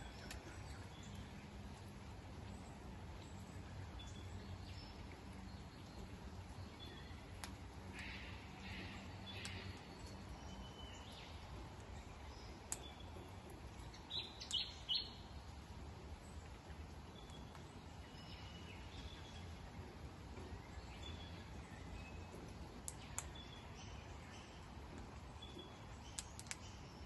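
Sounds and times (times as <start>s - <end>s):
birds chirping: 0.0s - 27.0s
outdoor background noise: 0.0s - 27.0s
sharp clicks: 26.1s - 26.8s.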